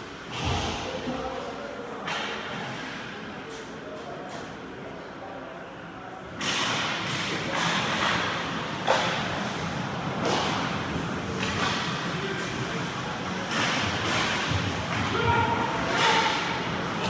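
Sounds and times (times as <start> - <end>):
hockey sticks and puck clacking: 6.4 - 17.0.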